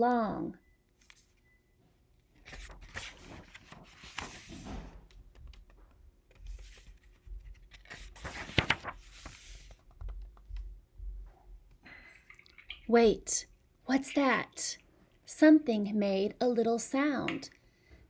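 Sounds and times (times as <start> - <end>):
book pages turning: 1.0 - 1.4, 2.4 - 10.4.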